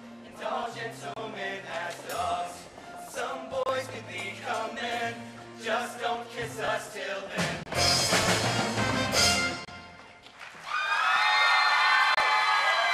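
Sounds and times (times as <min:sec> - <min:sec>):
musical accompaniment: 0:00.0 - 0:10.5
boys singing: 0:00.3 - 0:07.6.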